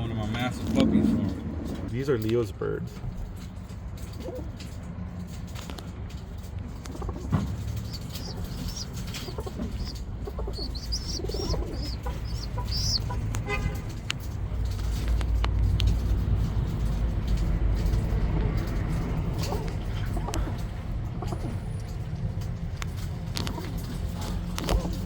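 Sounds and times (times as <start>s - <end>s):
steady low rumble: 0.0s - 25.0s
rattling run of ticks: 0.1s - 25.0s
small birds chirping: 6.7s - 16.0s.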